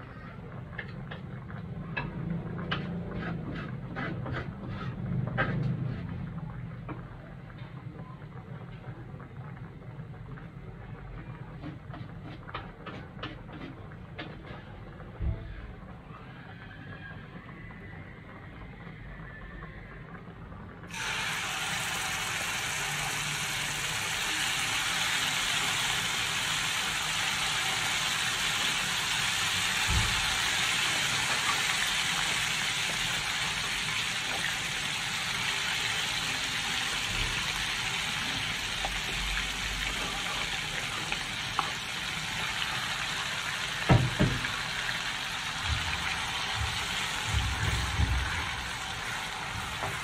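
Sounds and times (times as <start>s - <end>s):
paste sizzling in hot oil: 20.9s - 50.0s.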